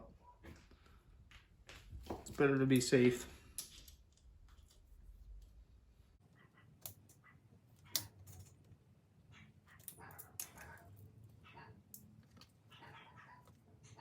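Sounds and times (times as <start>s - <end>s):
hand tools clicking and tapping: 9.8s - 10.8s.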